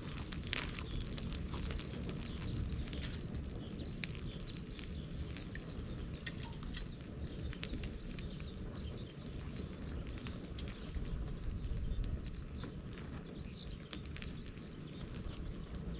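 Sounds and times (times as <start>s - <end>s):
bonfire flames rushing: 0.0s - 15.9s
fire crackling and popping: 0.0s - 15.9s.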